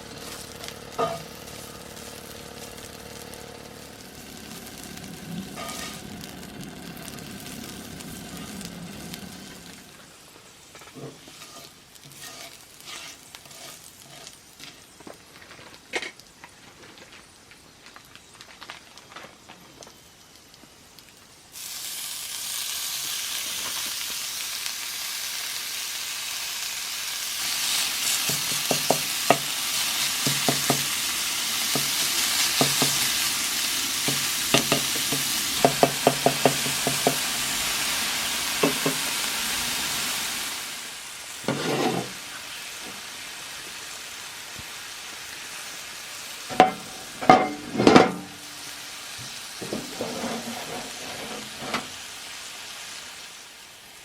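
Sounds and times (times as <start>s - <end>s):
meat sizzling in a skillet: 0.0s - 15.4s, 19.4s - 54.0s
utensil scraping a pan: 5.3s - 6.3s, 10.8s - 14.9s, 41.4s - 42.2s, 49.6s - 52.0s
knocks on a pan: 28.5s - 29.5s, 30.2s - 30.9s, 32.6s - 33.0s, 34.1s - 37.2s, 38.6s - 39.0s, 46.5s - 48.3s.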